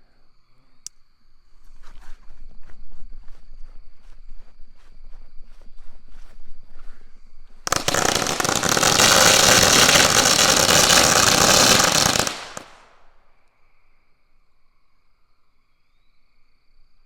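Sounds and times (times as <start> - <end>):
firecracker bang: 7.7 - 12.9
firecrackers cracking: 7.7 - 12.9.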